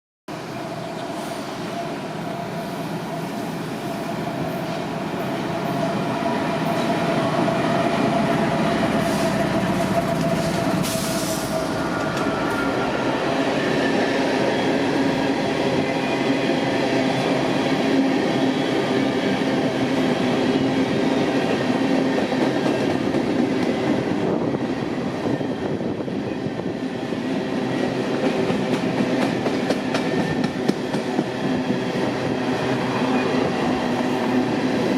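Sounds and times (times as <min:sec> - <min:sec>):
train wheels rumbling and rattling: 0:03.2 - 0:34.9.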